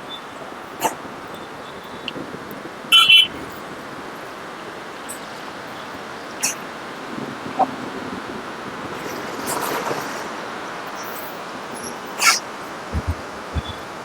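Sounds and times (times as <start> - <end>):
gym background hiss: 10.9 - 14.0.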